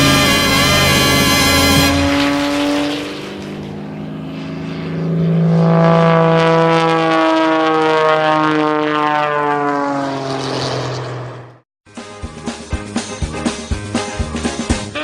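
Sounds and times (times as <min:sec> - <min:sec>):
propeller airplane flying past: 0:00.0 - 0:11.6.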